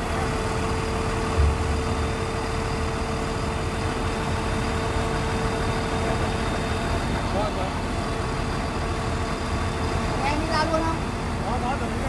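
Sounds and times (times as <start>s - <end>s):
heavy engine idling: 0.0s - 12.0s
low thump: 1.4s - 2.4s.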